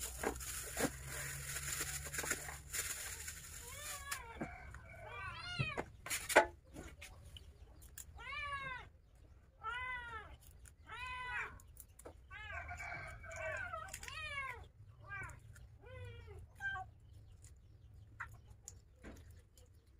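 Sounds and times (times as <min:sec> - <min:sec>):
cat meowing: 0:03.6 - 0:05.9.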